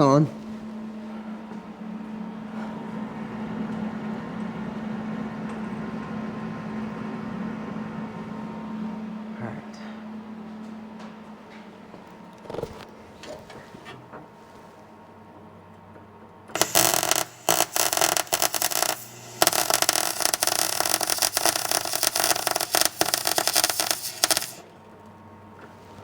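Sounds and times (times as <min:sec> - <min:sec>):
welder arc crackling: 0:16.5 - 0:24.7.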